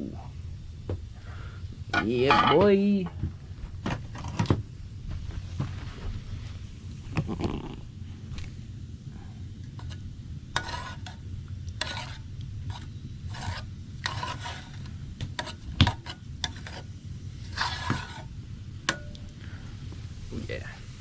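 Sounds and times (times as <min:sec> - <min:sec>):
spoon scraping a cooking pot: 0:09.7 - 0:11.2, 0:11.8 - 0:19.3.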